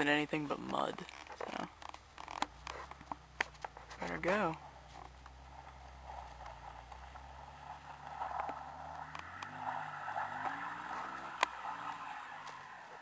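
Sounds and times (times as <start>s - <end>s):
tyres spinning: 0.0s - 13.0s
distant car engine revving: 5.1s - 13.0s.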